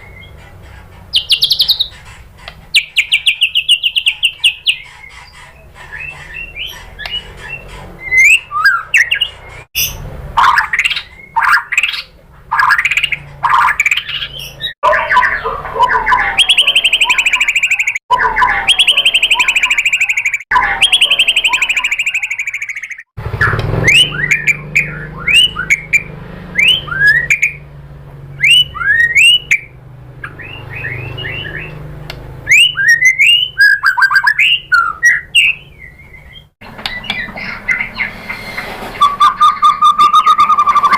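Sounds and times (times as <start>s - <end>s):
bird singing whistled notes: 5.9s - 10.0s, 16.1s - 27.6s, 28.4s - 31.8s, 32.5s - 40.9s.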